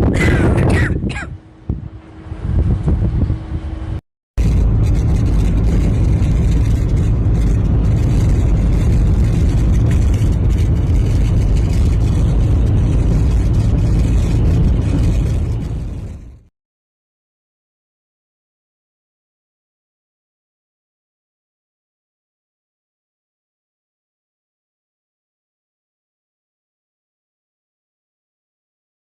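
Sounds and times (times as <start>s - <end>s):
strong wind blasting microphone: 0.0s - 16.5s.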